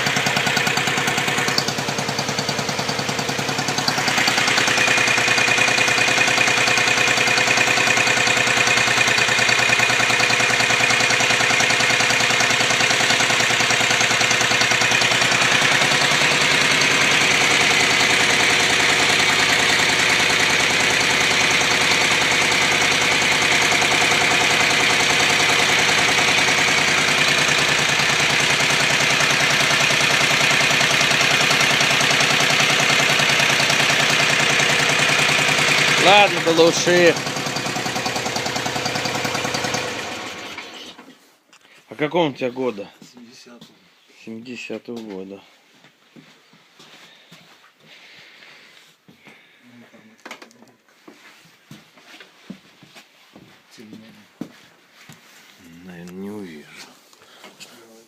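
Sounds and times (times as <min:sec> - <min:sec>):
motorcycle engine idling: 0:00.0 - 0:40.7.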